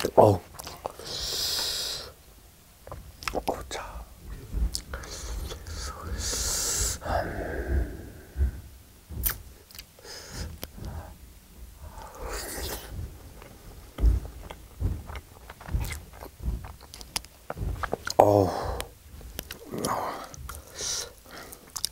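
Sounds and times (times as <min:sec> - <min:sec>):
wet chewing clicks and smacks: 0:00.6 - 0:01.0, 0:02.8 - 0:03.6, 0:09.1 - 0:11.1, 0:12.0 - 0:21.9.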